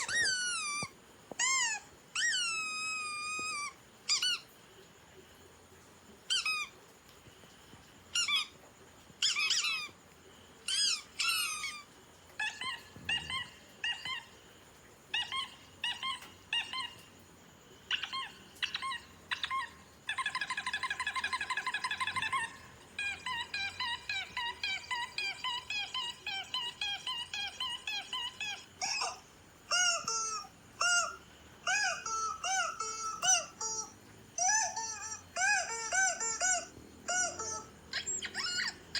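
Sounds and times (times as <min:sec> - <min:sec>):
squeaky dog toy squeaking: 0:00.0 - 0:04.5, 0:06.3 - 0:06.7, 0:08.2 - 0:08.5, 0:09.2 - 0:09.9, 0:10.7 - 0:11.8, 0:21.8 - 0:38.8.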